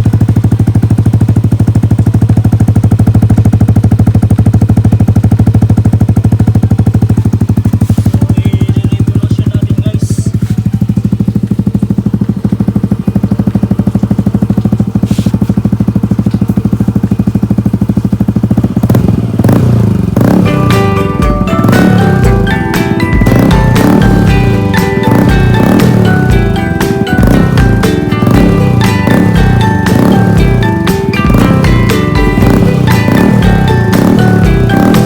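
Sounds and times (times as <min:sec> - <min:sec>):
scooter engine idling: 0:00.0 - 0:35.0.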